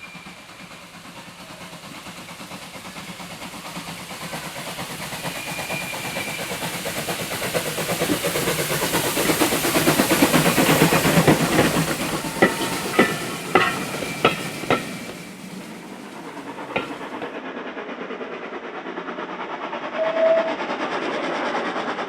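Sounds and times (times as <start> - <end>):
steam locomotive exhaust beats: 0.0 - 22.0
wheels clicking over rail joints: 1.4 - 17.3.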